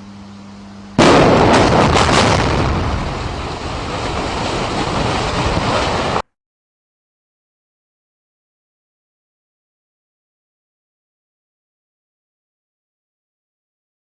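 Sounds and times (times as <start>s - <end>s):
building collapsing rumble: 1.0s - 6.2s
demolition blasts: 1.0s - 6.2s.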